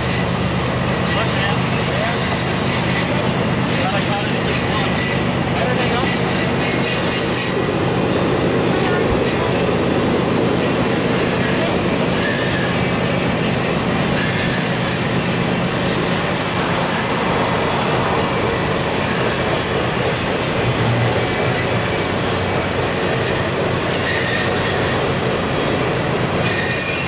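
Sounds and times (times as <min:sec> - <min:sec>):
high wheel squeals: 0:00.0 - 0:07.6, 0:10.5 - 0:13.2, 0:14.1 - 0:15.2, 0:22.7 - 0:25.4, 0:26.4 - 0:27.0
steel wheels rumbling on rail: 0:00.0 - 0:27.0.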